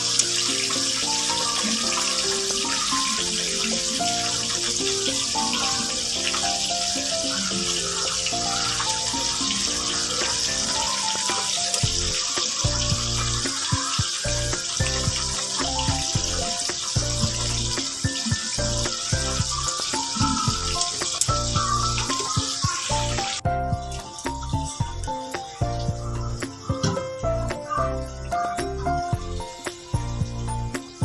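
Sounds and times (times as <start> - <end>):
background music: 0.0 - 31.0
tap running into sink: 8.0 - 27.6.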